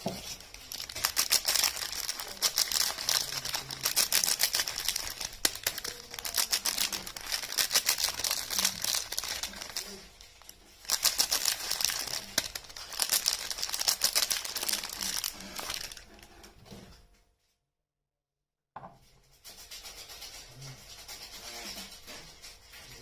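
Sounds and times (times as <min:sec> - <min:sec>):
packaging crinkling and tearing: 0:00.2 - 0:16.4.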